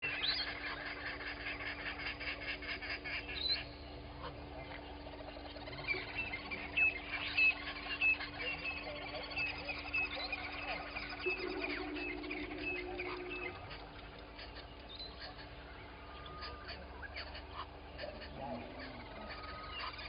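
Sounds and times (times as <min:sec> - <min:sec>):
bird chattering call: 0:00.0 - 0:20.0
steady low hum: 0:00.0 - 0:20.0
high whistled bird note: 0:11.1 - 0:13.8.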